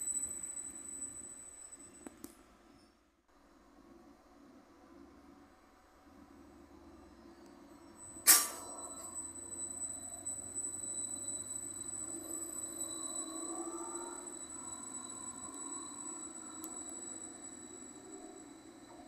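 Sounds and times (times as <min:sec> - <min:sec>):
steady high-pitched tone: 0:00.0 - 0:02.2, 0:07.6 - 0:19.0
train traction whine: 0:00.0 - 0:02.8, 0:03.7 - 0:19.0
sharp loud click: 0:08.3 - 0:08.6.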